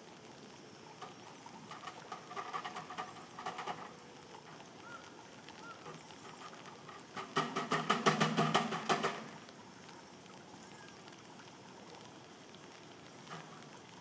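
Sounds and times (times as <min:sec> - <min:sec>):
background hiss: 0:00.0 - 0:14.0
faint birds chirping: 0:03.1 - 0:07.0, 0:09.6 - 0:14.0.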